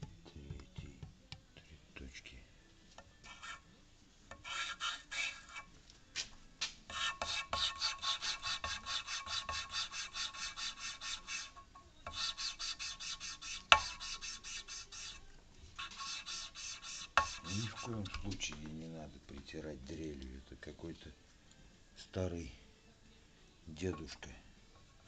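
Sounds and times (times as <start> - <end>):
valve lapping metal rasping: 4.3 - 5.7, 6.9 - 15.2, 15.8 - 18.4.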